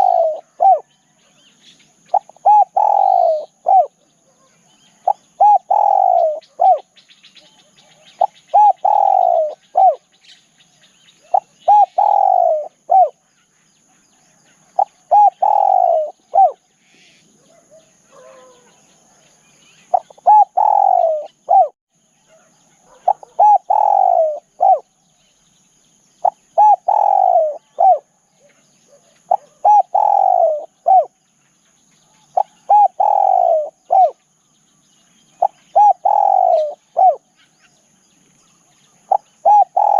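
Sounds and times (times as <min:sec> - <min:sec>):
dove cooing: 0:00.0 - 0:01.2, 0:02.0 - 0:10.1, 0:11.2 - 0:13.2, 0:14.6 - 0:18.8, 0:19.8 - 0:25.0, 0:26.2 - 0:31.2, 0:32.1 - 0:34.2, 0:35.4 - 0:37.3, 0:39.0 - 0:39.9.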